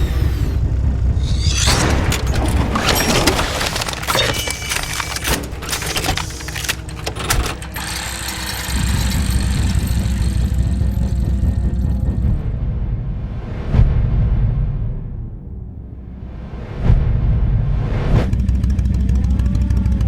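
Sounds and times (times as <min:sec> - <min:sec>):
motorcycle engine running: 0:00.0 - 0:02.8, 0:06.8 - 0:12.6, 0:18.3 - 0:20.0
sharp clicks and clatter: 0:01.0 - 0:12.2.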